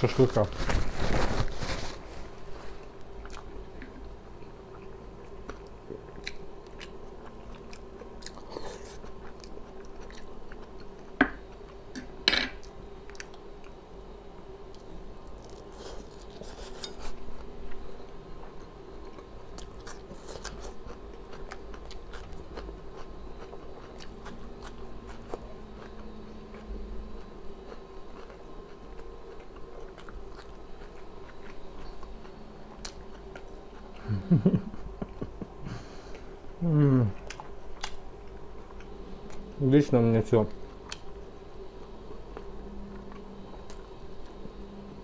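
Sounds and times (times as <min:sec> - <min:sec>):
faint steady hum: 0:00.0 - 0:45.0
chewing and biting meat: 0:19.1 - 0:34.0.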